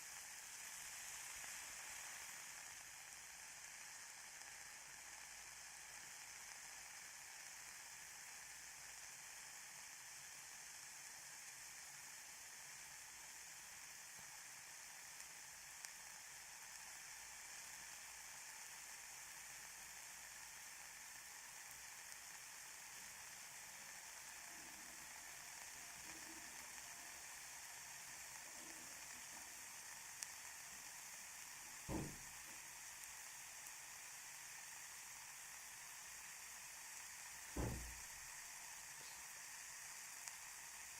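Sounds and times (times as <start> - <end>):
ear candles burning hiss: 0.0 - 40.9
soft low thump: 31.9 - 32.2, 37.6 - 38.0.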